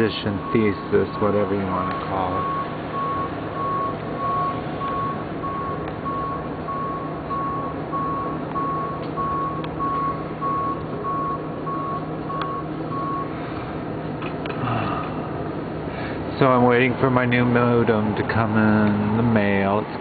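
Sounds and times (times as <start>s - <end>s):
steady background hum: 0.0s - 20.0s
reversing alarm beeping: 0.1s - 13.4s.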